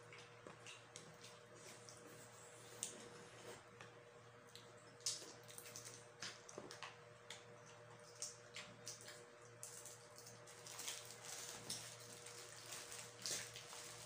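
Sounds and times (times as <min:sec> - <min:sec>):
wet chewing and lip-smacking: 0:00.0 - 0:03.0
steady low hum: 0:00.0 - 0:14.0.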